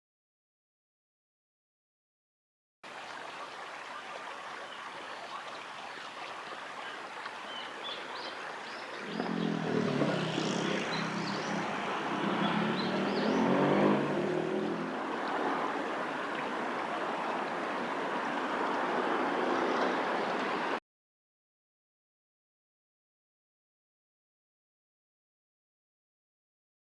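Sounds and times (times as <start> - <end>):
outdoor ambience: 2.9 - 20.8
passing vehicle engine hum: 9.0 - 20.8.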